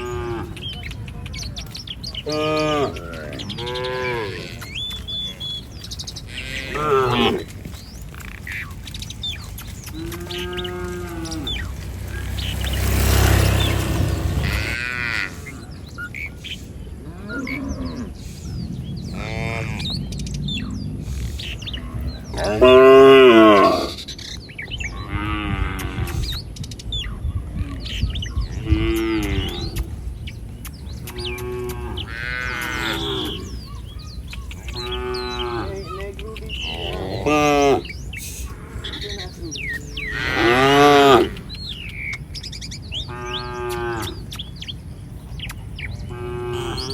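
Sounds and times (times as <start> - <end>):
cattle mooing: 0.0 - 0.6, 2.2 - 5.4, 6.3 - 7.8, 9.9 - 15.7, 22.3 - 24.0, 31.1 - 33.8, 34.4 - 41.6, 43.0 - 44.2, 46.0 - 46.9.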